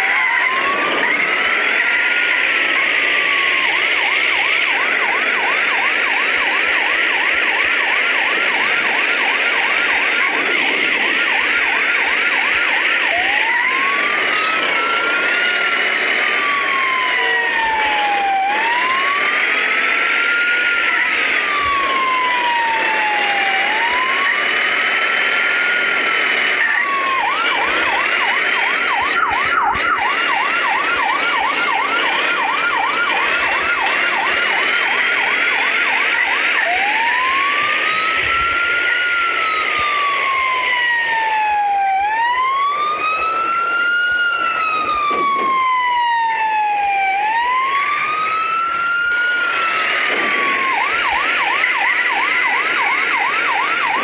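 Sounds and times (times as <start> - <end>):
higher-pitched siren gliding: 0.0 - 54.0
siren wailing and yelping: 0.0 - 54.0.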